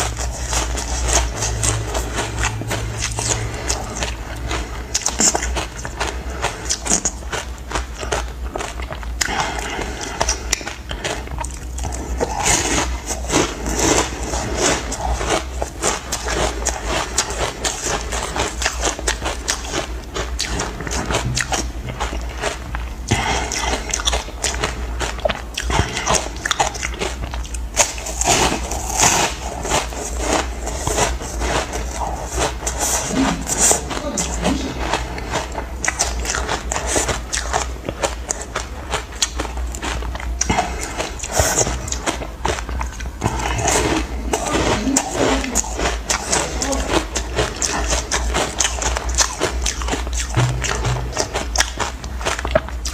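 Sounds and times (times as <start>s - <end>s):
low steady hum: 0.0s - 52.9s.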